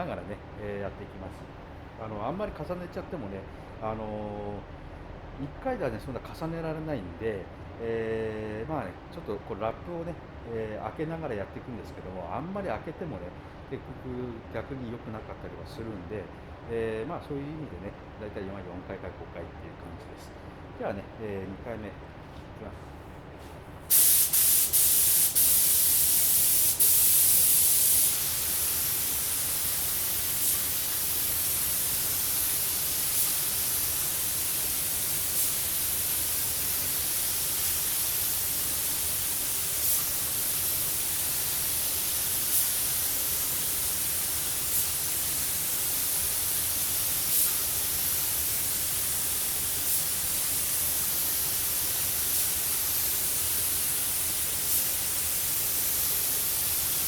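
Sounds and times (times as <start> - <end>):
paint spray gun hissing: 23.9 - 57.0.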